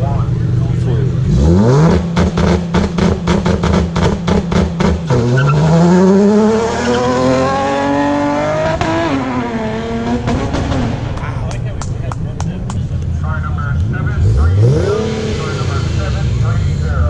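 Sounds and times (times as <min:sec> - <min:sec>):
car exhaust revving and popping: 0:00.0 - 0:17.0.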